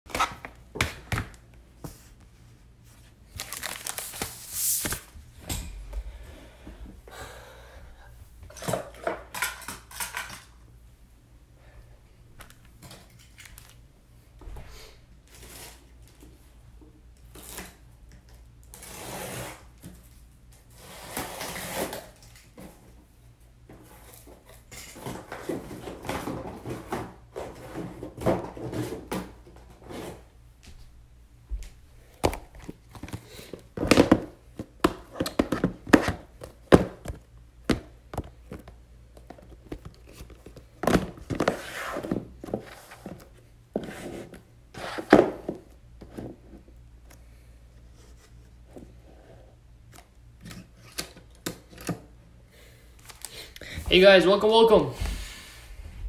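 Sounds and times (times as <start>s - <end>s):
objects handled rustling and clicking: 8.4s - 10.6s, 12.4s - 13.8s.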